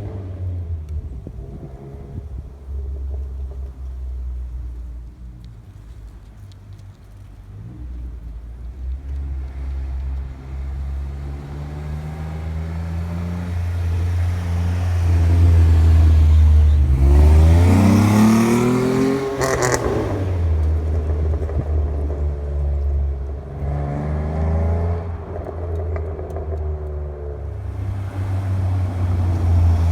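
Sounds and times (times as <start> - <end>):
car engine idling and revving: 0.0 - 29.9
exhaust crackle: 0.0 - 29.9.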